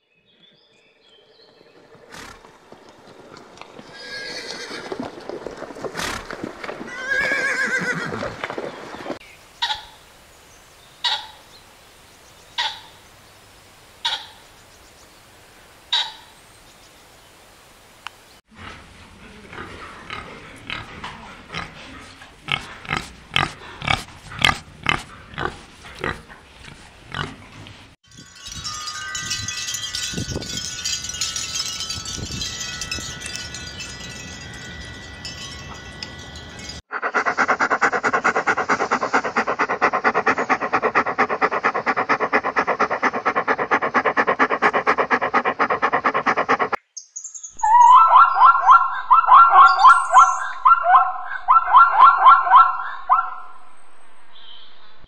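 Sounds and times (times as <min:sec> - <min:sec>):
hissing rustle: 0:01.8 - 0:06.8
rapid repeated animal calls: 0:09.6 - 0:10.0, 0:11.0 - 0:11.4, 0:12.6 - 0:13.0, 0:14.0 - 0:14.4, 0:15.9 - 0:16.3, 0:36.9 - 0:46.8
warthog grunting: 0:18.5 - 0:27.9, 0:37.0 - 0:46.8
high animal call: 0:36.9 - 0:46.7, 0:47.6 - 0:53.6.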